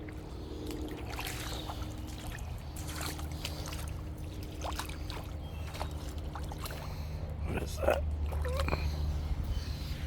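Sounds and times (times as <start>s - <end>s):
splashes of wading footsteps: 0.0s - 7.4s
river water sloshing and trickling: 0.0s - 10.0s.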